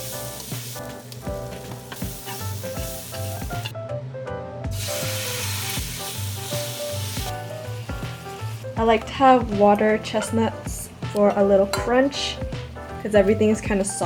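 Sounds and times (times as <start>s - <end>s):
food sizzling in a pan: 0.0s - 3.7s, 4.7s - 9.3s
pop music: 7.3s - 14.0s.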